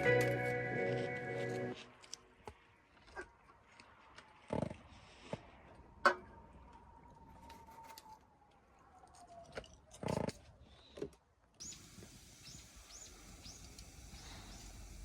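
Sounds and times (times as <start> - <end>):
bird chirping: 11.6 - 15.0
campfire crackling: 11.6 - 15.0.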